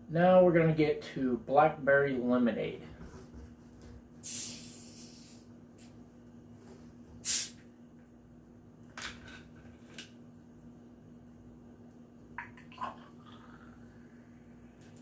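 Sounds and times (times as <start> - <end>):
carbonated bottle opening hiss: 4.2 - 5.9, 7.2 - 7.7.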